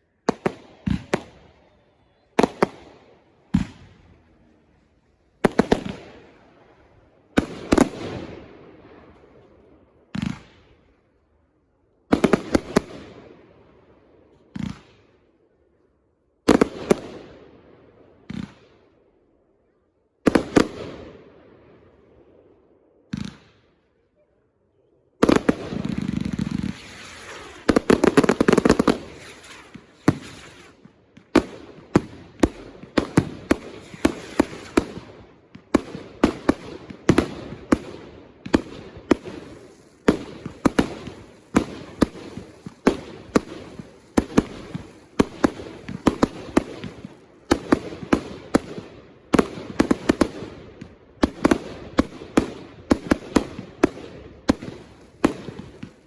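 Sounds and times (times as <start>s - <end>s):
fireworks bangs: 0.2s - 4.6s, 5.4s - 10.8s, 12.1s - 13.4s, 25.2s - 56.0s.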